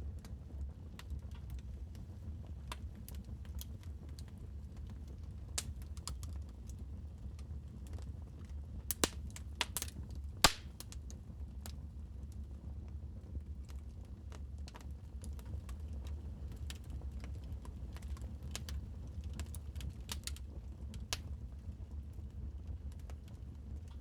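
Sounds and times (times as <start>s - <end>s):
wood fire crackling: 0.1s - 12.6s, 13.5s - 24.0s.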